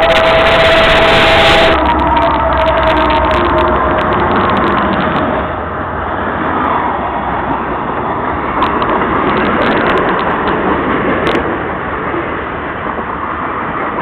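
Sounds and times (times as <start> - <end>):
faint steady tones: 0.0 - 5.9
freight train wheels rumbling: 0.0 - 14.0.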